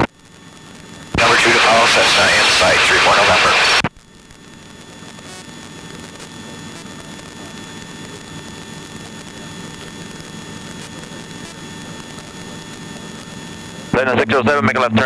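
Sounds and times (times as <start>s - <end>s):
helicopter cabin drone: 0.0s - 13.9s
faint high-pitched whines: 0.7s - 14.0s.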